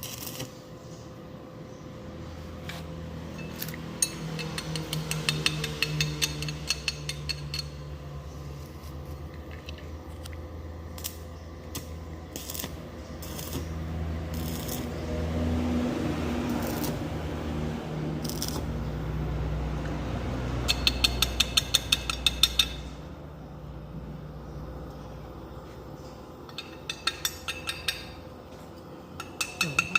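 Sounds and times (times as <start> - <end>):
low steady hum: 0.0 - 29.9
rapid metallic clicking: 3.4 - 7.8, 20.6 - 22.9.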